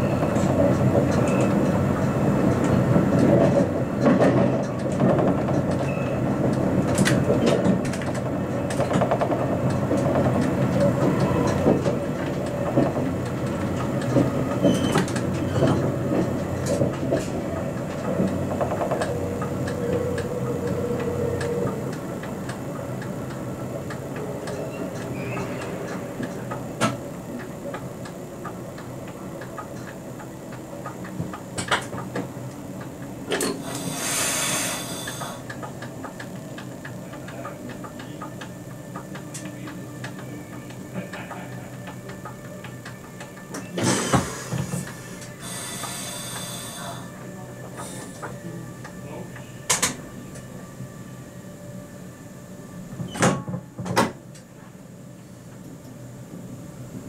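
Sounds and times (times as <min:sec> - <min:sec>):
train running noise: 0:00.0 - 0:57.0.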